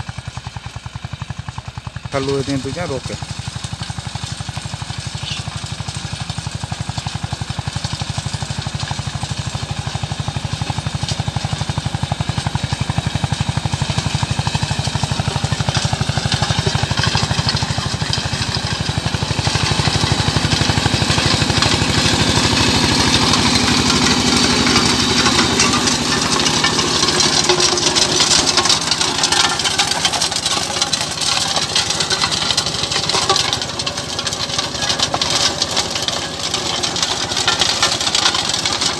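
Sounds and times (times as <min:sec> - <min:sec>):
tractor diesel engine running: 0:00.0 - 0:38.9
harsh high rattle: 0:02.2 - 0:38.9.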